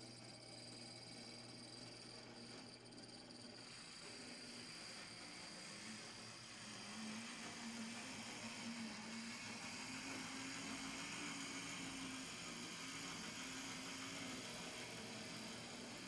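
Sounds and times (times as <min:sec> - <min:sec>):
model train motor humming: 0:03.4 - 0:16.0.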